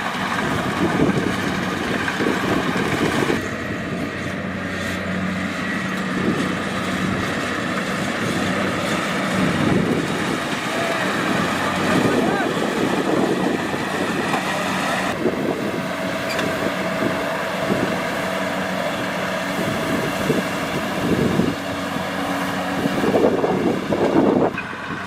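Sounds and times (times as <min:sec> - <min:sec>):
combine harvester diesel engine: 0:00.0 - 0:25.0.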